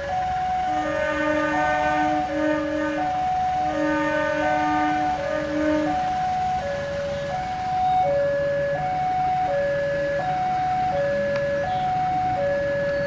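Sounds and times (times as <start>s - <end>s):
two-tone warning alarm: 0.0s - 13.0s
train horn: 0.7s - 6.3s.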